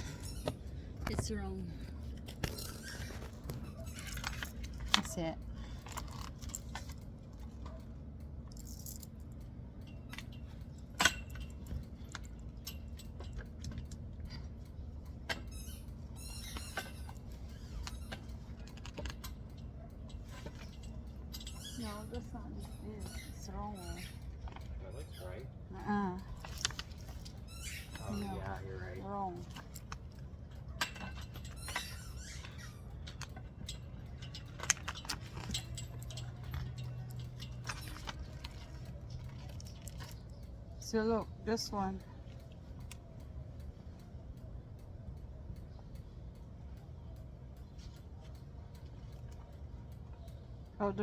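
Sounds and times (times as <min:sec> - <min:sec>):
light metal clicks and clinks: 0:00.0 - 0:51.0
steady low hum: 0:00.0 - 0:51.0.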